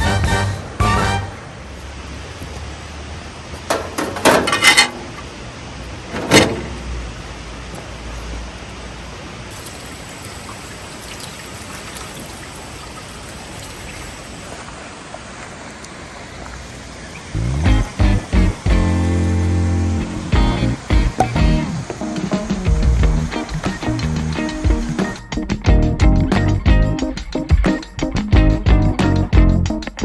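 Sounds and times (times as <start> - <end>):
river water rushing: 0.6 - 17.4
short knocks and clatters: 3.6 - 5.1.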